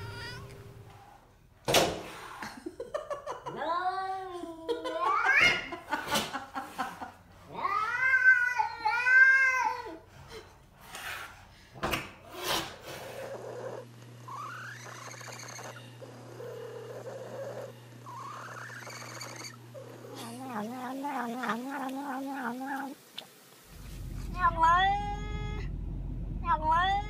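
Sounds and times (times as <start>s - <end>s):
cat meowing: 0.0s - 0.6s, 24.4s - 25.7s
steady low hum: 23.6s - 27.0s.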